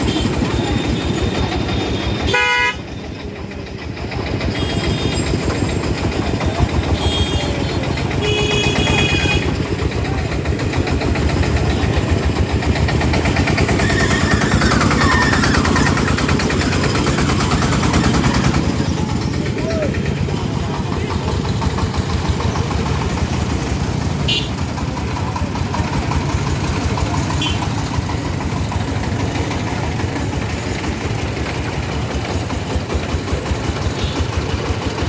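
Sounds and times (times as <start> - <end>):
vehicle horns honking: 0.0 - 2.9, 4.5 - 5.4, 6.9 - 9.6, 24.2 - 24.7, 27.3 - 27.8
truck engines running: 0.0 - 35.0.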